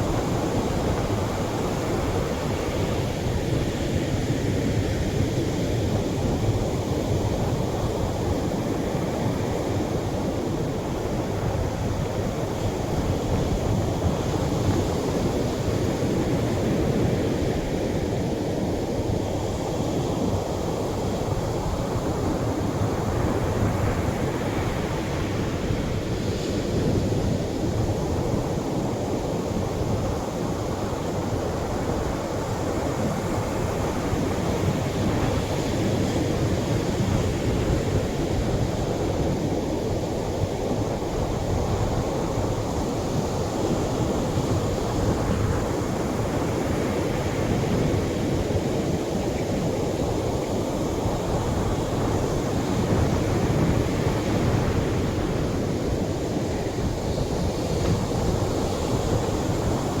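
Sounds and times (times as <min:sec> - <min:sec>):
surf breaking on a beach: 0:07.2 - 1:00.0.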